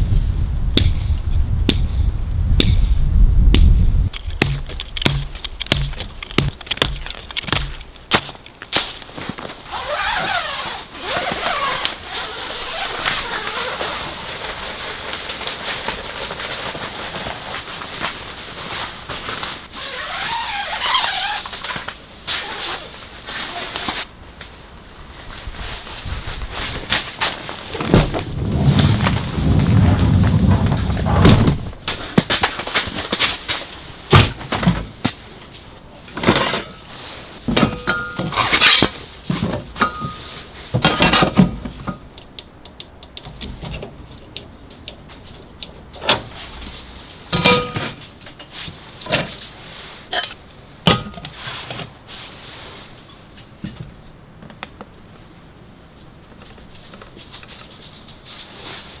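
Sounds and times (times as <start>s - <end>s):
low rumbling: 0.0s - 8.0s, 27.7s - 31.9s
hard objects knocking and clattering: 4.1s - 8.5s.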